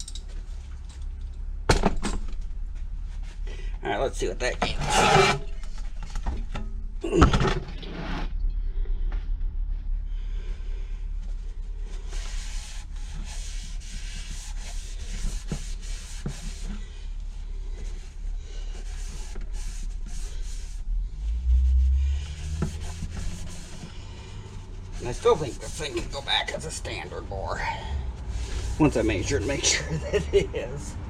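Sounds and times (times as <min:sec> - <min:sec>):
steady low hum: 0:00.0 - 0:31.0
rubbing and scraping on metal: 0:03.1 - 0:08.3, 0:11.3 - 0:30.8.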